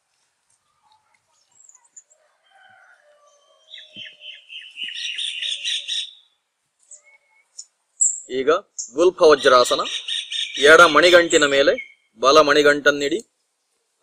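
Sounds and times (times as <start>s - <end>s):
wild birds calling: 0.6s - 12.2s
bird chirping rapidly: 3.5s - 12.6s.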